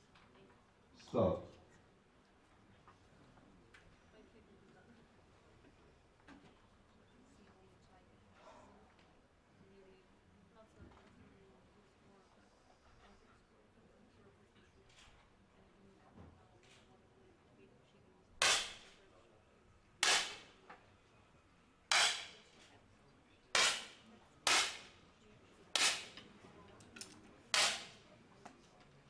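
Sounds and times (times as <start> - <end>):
air pistol shots: 18.4 - 19.0, 20.0 - 20.5, 21.9 - 22.4, 23.6 - 24.9, 25.8 - 26.2, 27.6 - 28.0.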